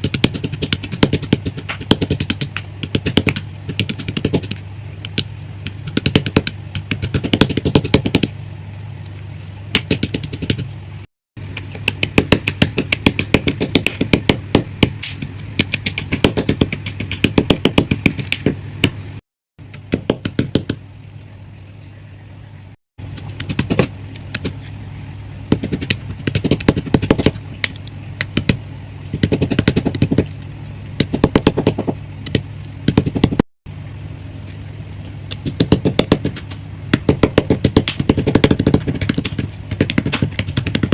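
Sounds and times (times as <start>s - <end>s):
steady low hum: 0.0s - 40.9s
chalk crunching: 34.1s - 35.6s.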